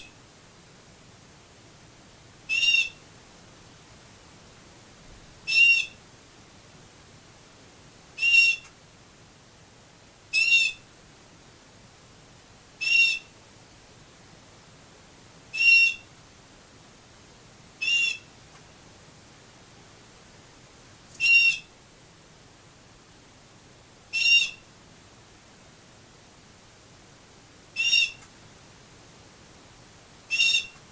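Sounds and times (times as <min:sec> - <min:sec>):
canary whistled call: 0:02.5 - 0:03.0, 0:05.5 - 0:06.0, 0:08.2 - 0:08.7, 0:10.3 - 0:10.8, 0:12.8 - 0:13.3, 0:15.5 - 0:16.1, 0:17.8 - 0:18.3, 0:21.2 - 0:21.7, 0:24.1 - 0:24.6, 0:27.8 - 0:28.2, 0:30.3 - 0:30.8.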